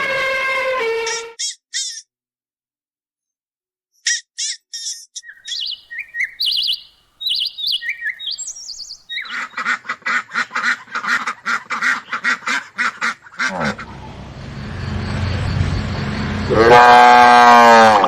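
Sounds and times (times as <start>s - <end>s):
high chirping bird calls: 5.2s - 9.8s
duck quacking: 5.5s - 14.0s.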